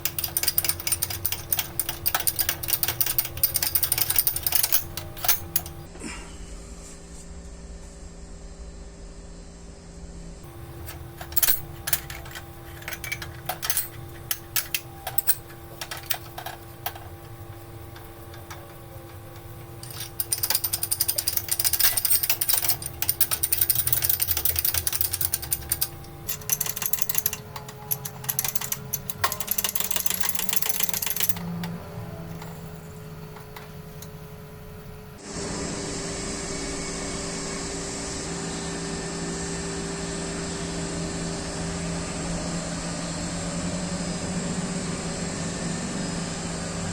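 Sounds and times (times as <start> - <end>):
metal parts knocked and handled: 0.0 - 5.9, 10.5 - 34.4
power tool rattling on metal: 0.0 - 5.9, 17.9 - 32.8
steady hum: 0.0 - 39.5.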